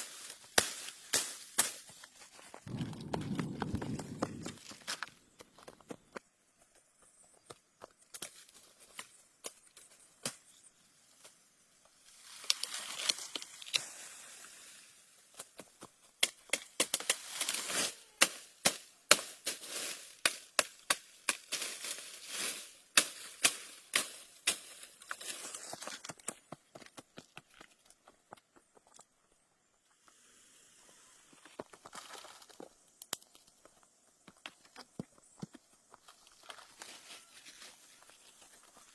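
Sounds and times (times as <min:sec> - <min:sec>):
leaves rustling: 0:12.0 - 0:15.0, 0:16.9 - 0:18.5, 0:19.2 - 0:25.8
twigs snapping: 0:12.3 - 0:13.8.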